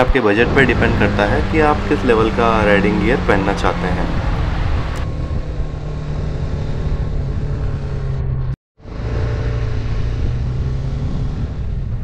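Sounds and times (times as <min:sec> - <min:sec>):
road noise: 0:00.0 - 0:12.0
motorcycle engine running: 0:00.4 - 0:12.0.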